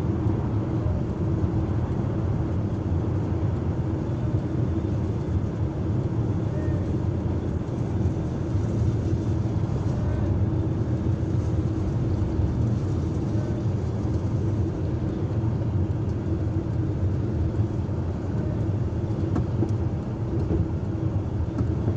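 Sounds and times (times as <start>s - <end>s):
large diesel engine running: 0.0s - 21.9s.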